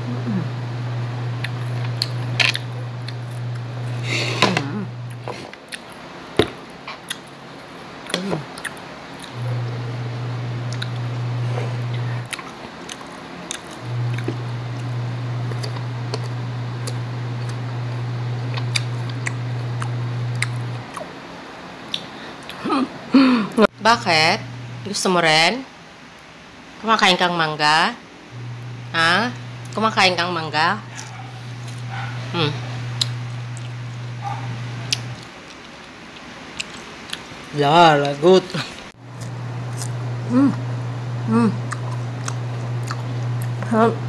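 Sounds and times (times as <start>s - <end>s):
steady low hum: 0.0s - 21.2s, 22.4s - 25.2s, 28.3s - 35.4s, 38.5s - 44.0s
chewing and crunching mango: 6.8s - 7.4s, 8.0s - 9.8s, 10.6s - 11.0s, 11.8s - 17.6s, 18.4s - 21.2s, 30.9s - 38.2s, 39.1s - 40.2s, 41.6s - 43.7s.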